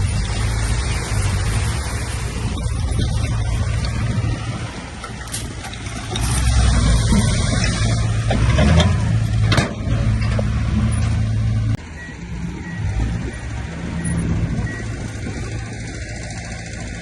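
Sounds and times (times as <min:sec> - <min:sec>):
heavy diesel machinery engine drone: 0:00.0 - 0:17.0.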